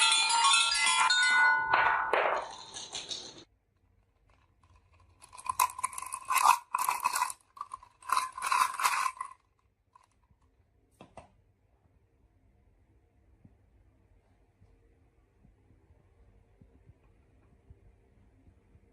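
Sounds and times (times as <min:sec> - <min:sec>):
marbles rolling down a track: 0:02.2 - 0:03.5, 0:04.3 - 0:10.2.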